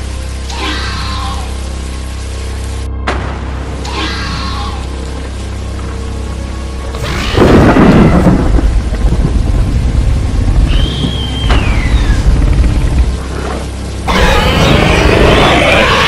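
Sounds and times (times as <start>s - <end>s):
loud thunderclap: 7.0s - 13.2s
low thunder rumble: 7.0s - 15.8s.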